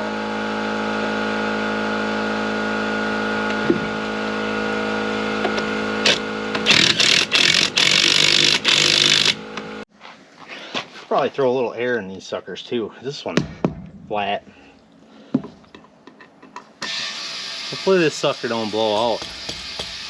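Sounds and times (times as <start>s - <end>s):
motor humming: 0.6s - 9.8s.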